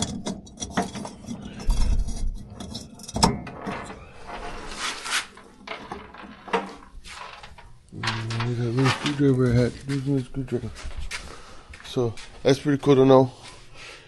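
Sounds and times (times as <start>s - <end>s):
small metal parts clicking and scraping: 0.0s - 9.6s.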